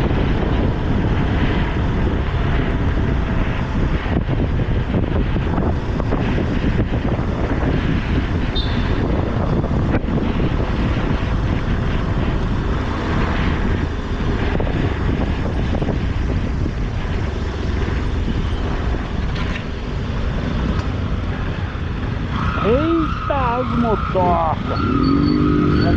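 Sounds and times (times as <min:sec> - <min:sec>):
motorcycle engine: 0:00.0 - 0:25.9
wind buffeting microphone: 0:00.0 - 0:25.9.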